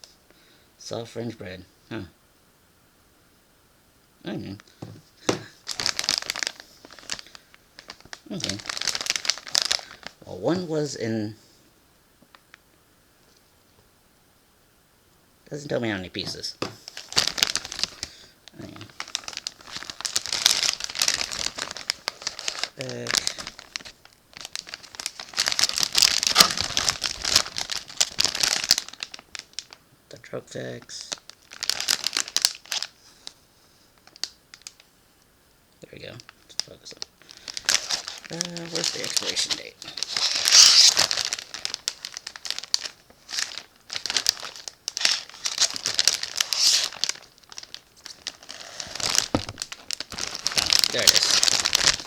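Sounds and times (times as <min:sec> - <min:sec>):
food packaging crinkling: 0:04.6 - 0:10.3, 0:16.2 - 0:29.8, 0:31.1 - 0:33.4, 0:34.0 - 0:34.8, 0:36.2 - 0:52.0.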